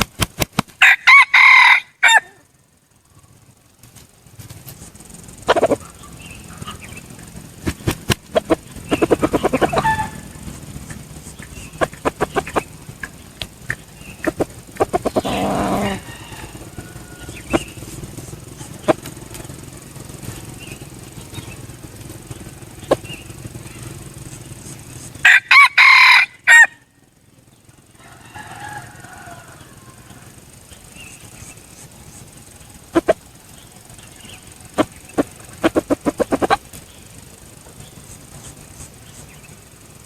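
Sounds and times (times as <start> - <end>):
rapid clicks: 0.0 - 1.1, 1.9 - 40.0
rooster crowing: 0.8 - 2.6, 8.4 - 12.8, 14.0 - 19.4, 25.2 - 27.0, 27.8 - 31.1
rustling: 3.2 - 25.2.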